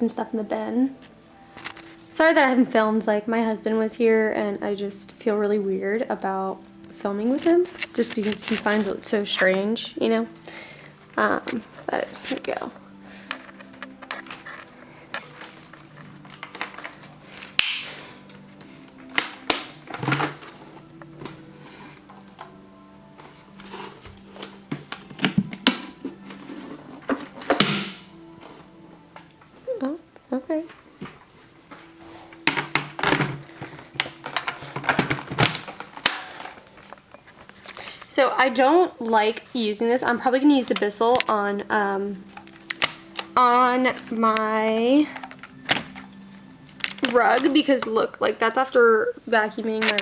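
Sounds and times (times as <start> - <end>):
plastic snap: 17.5 - 17.9
plastic parts clicking and knocking: 32.4 - 37.0.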